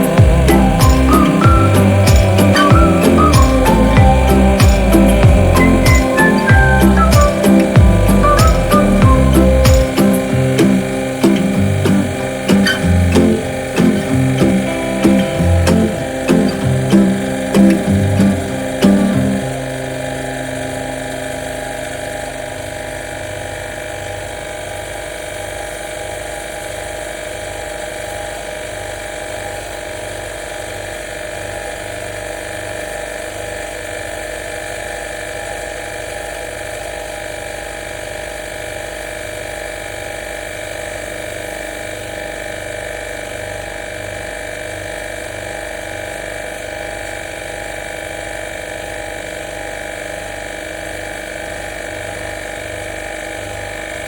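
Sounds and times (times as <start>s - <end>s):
steady whining tones: 0.0s - 25.8s
electric pump motor humming: 0.0s - 54.0s.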